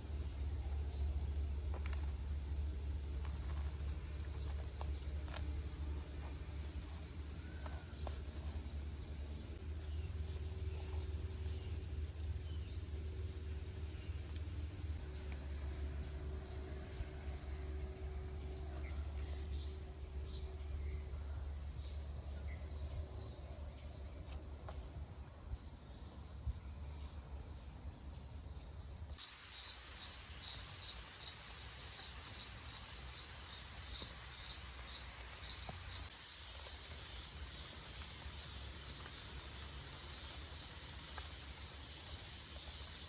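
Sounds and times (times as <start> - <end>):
faint hiss: 24.2 - 43.0.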